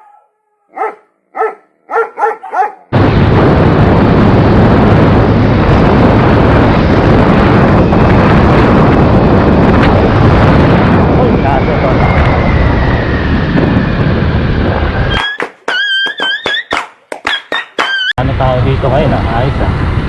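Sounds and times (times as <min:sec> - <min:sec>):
dog barking: 0:00.0 - 0:02.9
wind noise on microphone: 0:02.8 - 0:20.0.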